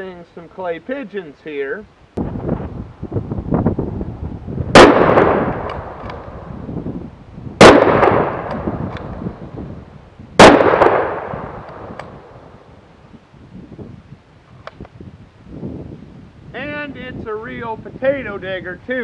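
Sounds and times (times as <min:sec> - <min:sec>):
rifle shots with rolling echo: 0:04.7 - 0:06.5, 0:07.6 - 0:09.2, 0:10.4 - 0:12.6.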